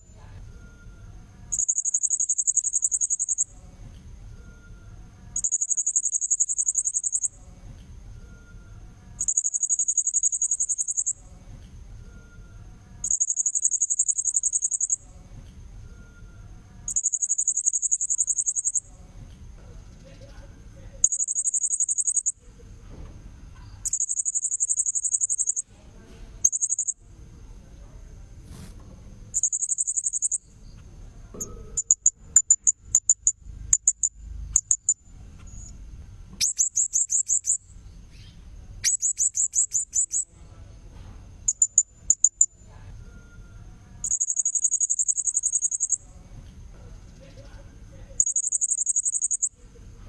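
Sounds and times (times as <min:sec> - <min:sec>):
parrot buzzy trills and chirps: 0:09.2 - 0:11.2, 0:16.9 - 0:18.8, 0:21.0 - 0:22.4, 0:23.8 - 0:25.6, 0:29.3 - 0:30.5, 0:36.4 - 0:40.3, 0:44.0 - 0:46.0, 0:48.2 - 0:49.5.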